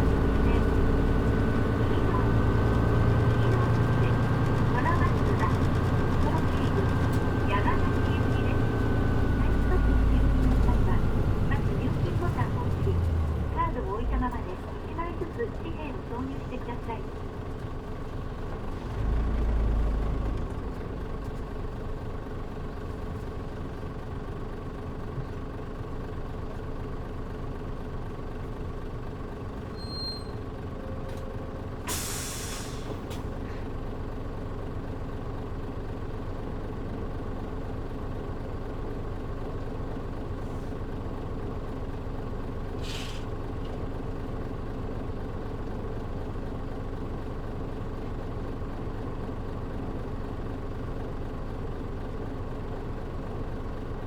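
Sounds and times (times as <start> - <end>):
bus diesel engine running: 0.0 - 54.0
air brakes hissing: 31.8 - 33.3, 42.8 - 43.4.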